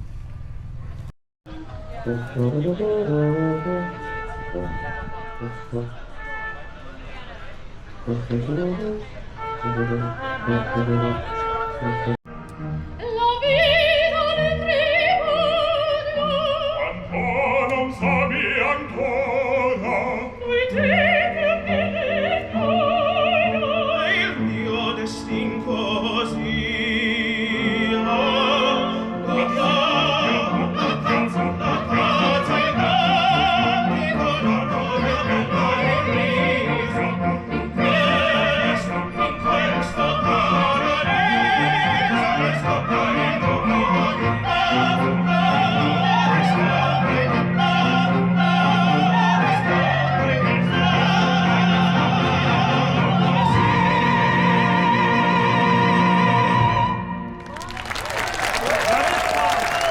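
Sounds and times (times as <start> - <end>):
sustained instrumental accompaniment: 1.6 - 7.0, 7.7 - 14.9
operatic singing with vibrato: 13.0 - 59.9.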